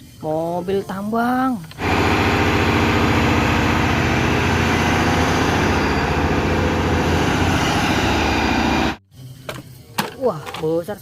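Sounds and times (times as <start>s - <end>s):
heavy truck engine running: 1.8s - 9.0s.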